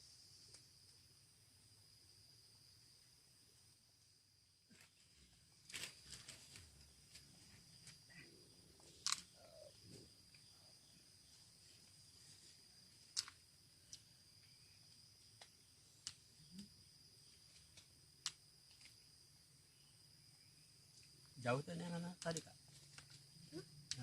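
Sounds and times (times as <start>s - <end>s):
high-pitched insect chorus: 0.0s - 24.0s
sharp clicks: 9.0s - 9.4s.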